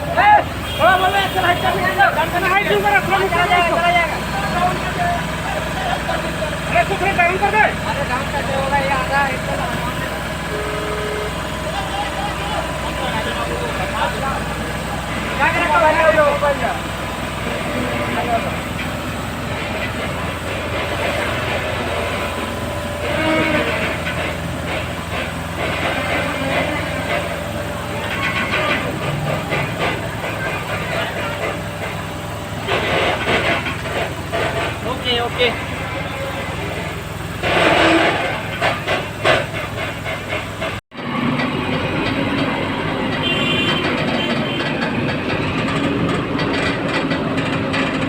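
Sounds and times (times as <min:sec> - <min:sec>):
heavy diesel engine humming: 0:00.0 - 0:48.0
heavy machinery rumbling: 0:00.0 - 0:48.0
metal clanks and knocks: 0:13.2 - 0:40.8, 0:41.4 - 0:48.0.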